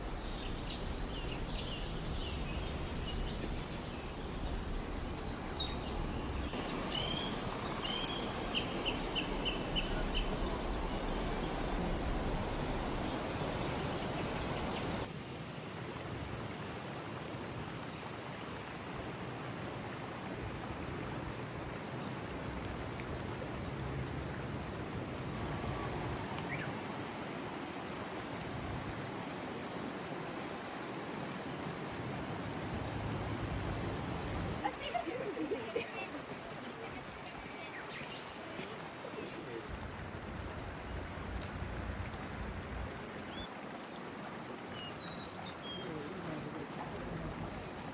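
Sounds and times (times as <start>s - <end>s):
steady rushing hiss: 0.0s - 15.2s, 25.4s - 43.5s.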